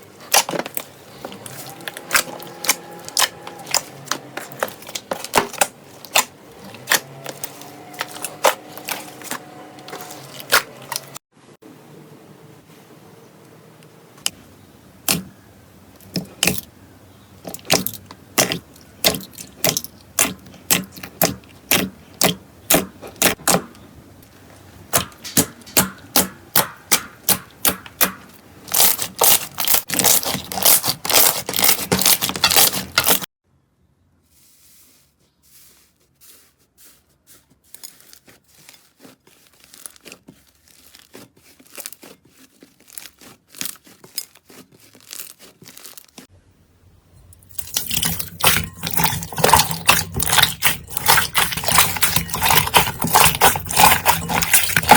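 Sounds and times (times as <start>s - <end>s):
slime popping and crackling: 24.9s - 33.2s, 37.8s - 46.2s, 47.5s - 54.9s.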